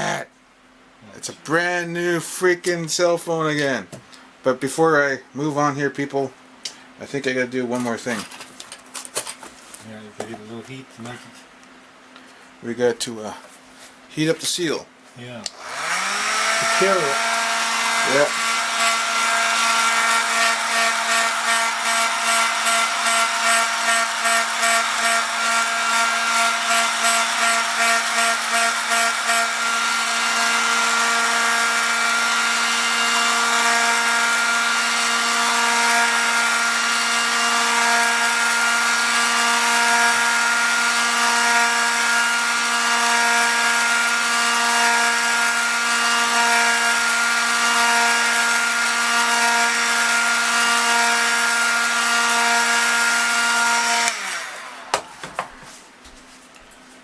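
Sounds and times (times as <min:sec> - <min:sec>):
hot-air blower humming: 0:00.0 - 0:00.3, 0:13.3 - 0:56.8.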